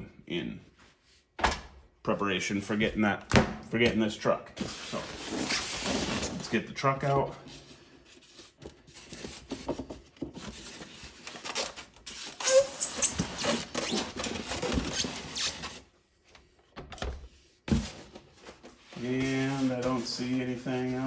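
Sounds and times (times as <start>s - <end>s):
cardboard and styrofoam rustling: 4.6s - 15.9s, 17.7s - 21.0s.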